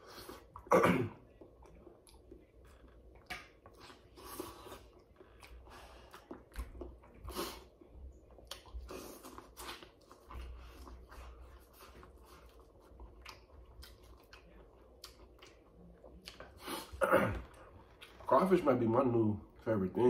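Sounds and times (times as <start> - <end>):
person chewing wetly: 0.0 - 18.3
wet smacks and clicks: 3.2 - 3.8.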